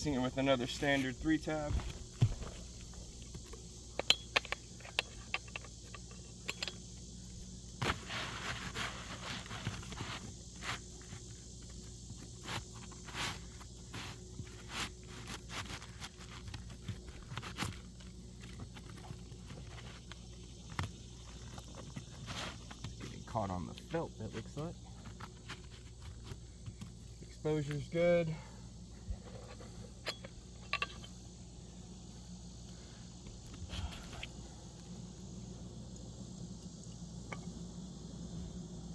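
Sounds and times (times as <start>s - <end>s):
sharp clicks and knocks: 1.2s - 6.8s
roof shingles scraping and rustling: 7.8s - 27.1s.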